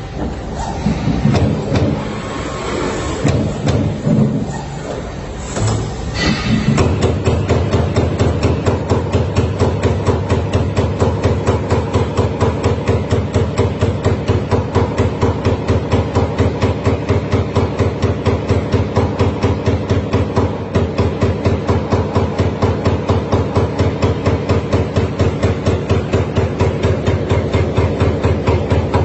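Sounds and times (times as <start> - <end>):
punch press punching steel sheet: 3.0 - 29.0.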